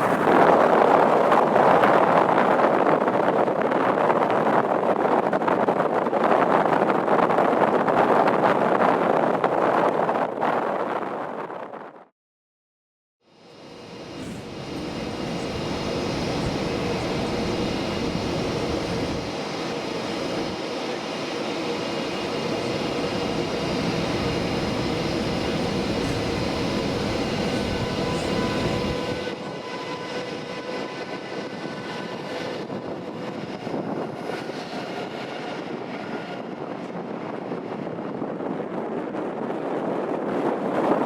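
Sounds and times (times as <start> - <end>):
passenger train running past: 0.0 - 11.1, 13.3 - 41.0
locomotive whine: 13.5 - 38.5.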